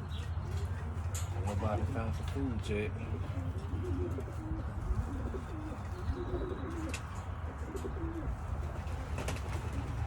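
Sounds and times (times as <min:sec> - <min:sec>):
pigeons cooing: 0:03.0 - 0:10.0.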